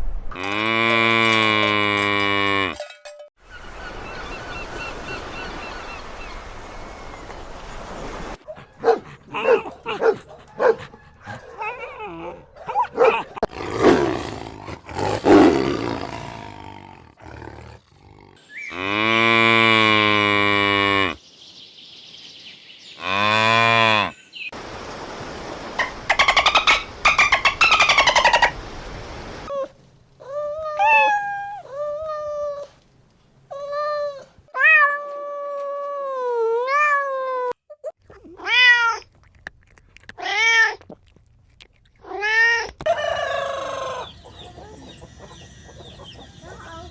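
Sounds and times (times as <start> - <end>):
cat meowing: 30.7 - 31.7, 46.4 - 46.9
roar-like animal calls: 42.9 - 46.9.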